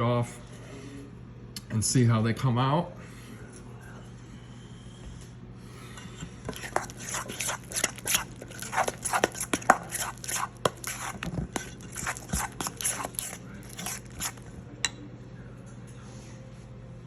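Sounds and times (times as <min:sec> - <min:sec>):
utensil stirring sauce in bowl: 0:06.0 - 0:14.6.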